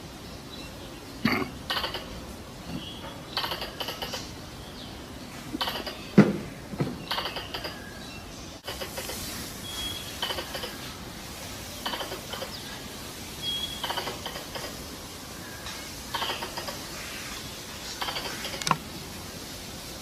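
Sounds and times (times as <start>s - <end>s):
squirrel clicking chatter: 1.7s - 2.2s, 3.4s - 4.3s, 5.6s - 6.0s, 7.1s - 7.8s, 8.6s - 9.2s, 10.2s - 10.8s, 11.8s - 12.6s, 13.8s - 14.8s, 16.1s - 17.0s, 18.0s - 18.8s.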